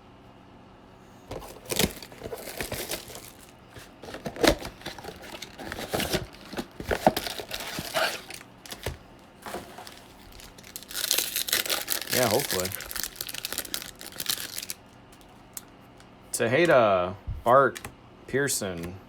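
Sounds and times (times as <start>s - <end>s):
plastic wrapper crinkling and tearing: 1.3s - 15.7s.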